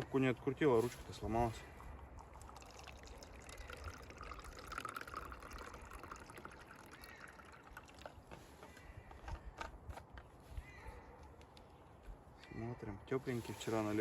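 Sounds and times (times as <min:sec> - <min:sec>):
drink poured into a cup: 0:01.4 - 0:08.3.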